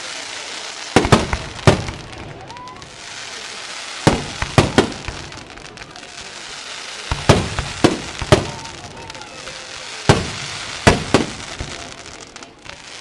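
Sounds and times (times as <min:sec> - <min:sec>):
steady hiss: 0:00.0 - 0:13.0
firework shells bursting: 0:00.9 - 0:03.0, 0:07.0 - 0:08.9, 0:10.0 - 0:12.3.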